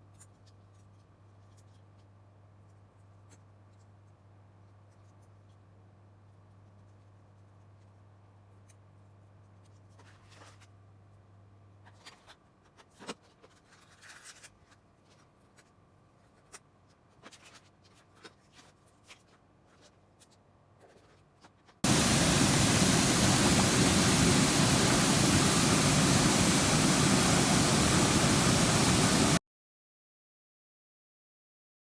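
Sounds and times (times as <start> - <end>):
loud even hiss: 21.8 - 29.4.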